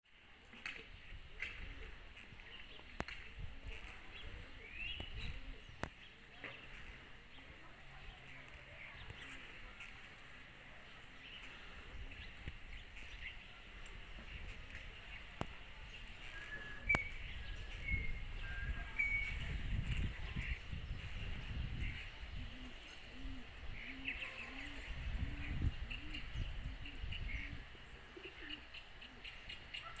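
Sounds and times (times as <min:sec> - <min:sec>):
small birds chirping: 0:00.2 - 0:30.0
pigeon cooing: 0:16.2 - 0:30.0
rising whistled bird call: 0:16.3 - 0:19.4.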